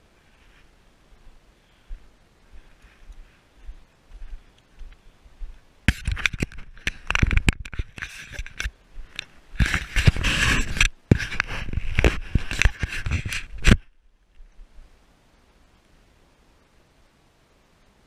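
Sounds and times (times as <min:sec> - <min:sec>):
scraping crackling rustles: 0:05.9 - 0:14.8.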